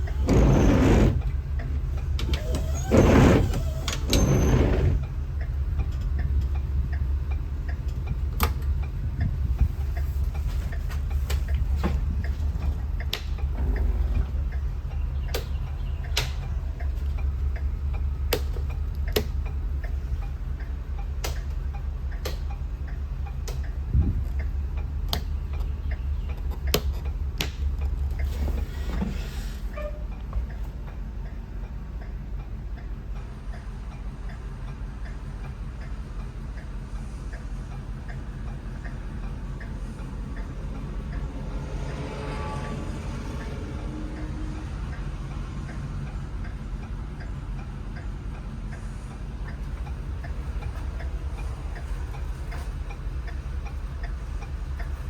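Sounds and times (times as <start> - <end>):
van engine idling: 0.0 - 55.0
sharp ticks: 14.5 - 28.3.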